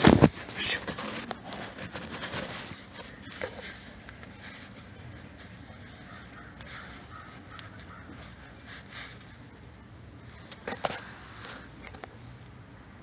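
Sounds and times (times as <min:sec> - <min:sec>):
bird cawing: 0:03.1 - 0:08.6.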